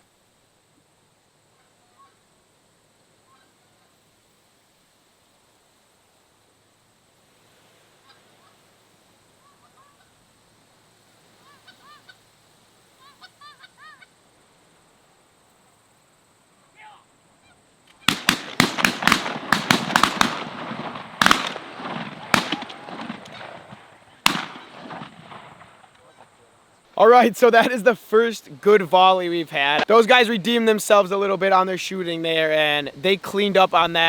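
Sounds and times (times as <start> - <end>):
shotgun blasts: 18.1 - 25.8
geese honking: 27.0 - 34.0.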